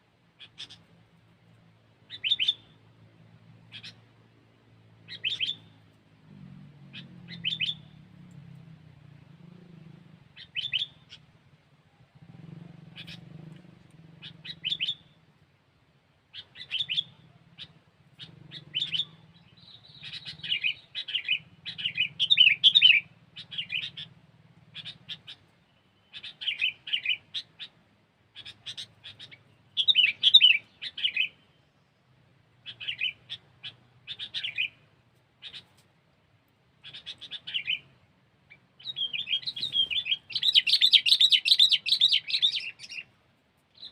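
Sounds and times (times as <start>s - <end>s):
bird chattering song: 0.4s - 1.0s, 2.1s - 2.8s, 3.6s - 4.1s, 5.0s - 5.9s, 6.9s - 8.0s, 10.3s - 11.3s, 12.2s - 15.2s, 16.3s - 35.9s, 36.8s - 43.9s.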